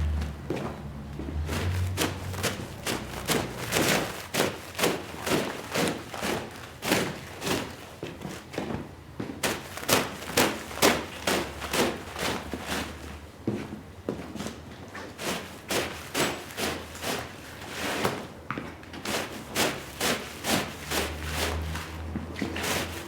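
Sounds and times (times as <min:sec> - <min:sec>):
tool swishing on wet rug: 0:00.0 - 0:07.8, 0:15.1 - 0:18.3, 0:19.0 - 0:23.0.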